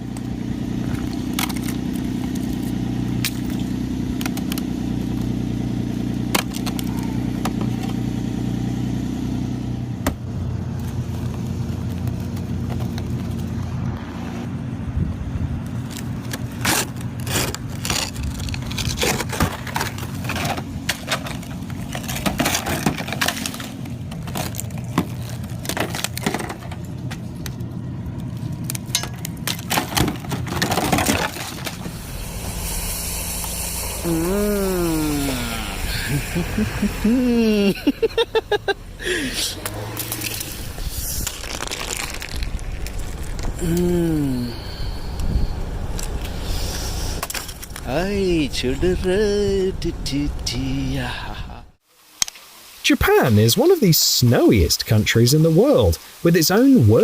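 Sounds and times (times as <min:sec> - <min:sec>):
car engine humming: 0:00.0 - 0:51.8
ice scraping and cracking: 0:00.1 - 0:05.6, 0:15.7 - 0:38.2, 0:39.0 - 0:48.0.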